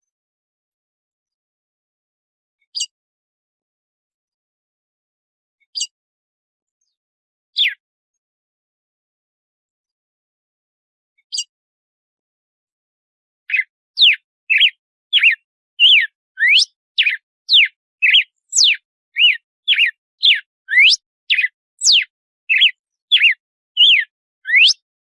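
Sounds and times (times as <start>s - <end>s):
bird whistling song: 7.6s - 7.8s, 13.5s - 24.9s.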